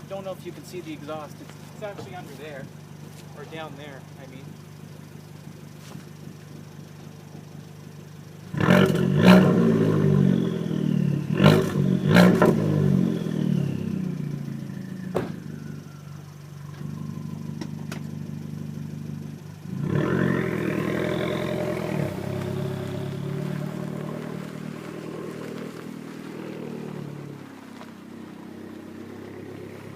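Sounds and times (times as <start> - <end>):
car engine idling and revving: 0.0 - 29.9.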